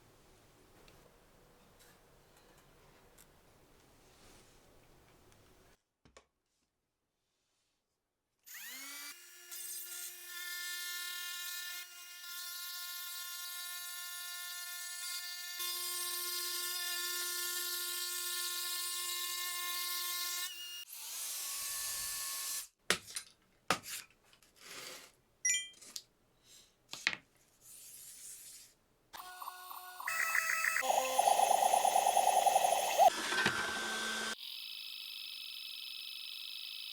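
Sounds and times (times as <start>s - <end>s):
trim router whining: 29.2s - 34.4s.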